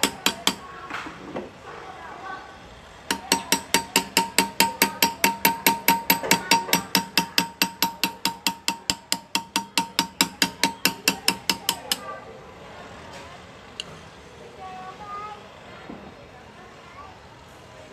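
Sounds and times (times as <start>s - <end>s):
hammer tapping graver into metal: 0.0s - 0.7s, 3.1s - 12.1s.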